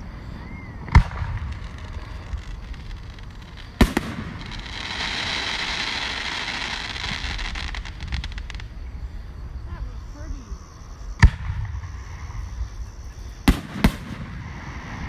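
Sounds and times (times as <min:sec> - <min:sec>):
firework crackling: 0:00.7 - 0:08.8, 0:13.4 - 0:15.0
firework shells bursting: 0:00.9 - 0:08.7.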